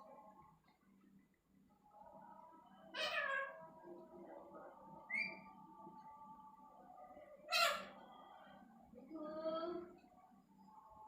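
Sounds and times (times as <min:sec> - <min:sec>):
parrot squawking: 0:07.5 - 0:07.9.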